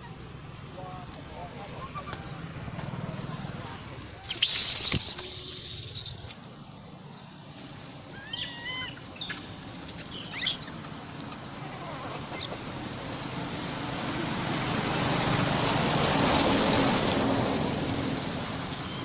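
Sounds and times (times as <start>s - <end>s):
monkeys squealing: 4.2s - 6.4s, 8.1s - 10.8s, 11.9s - 13.0s.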